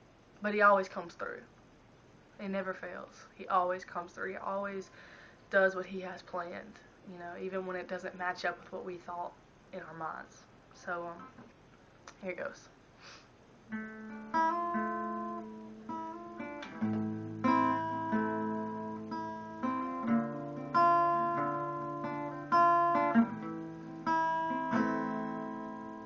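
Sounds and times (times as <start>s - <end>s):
acoustic guitar chords: 13.7s - 26.0s.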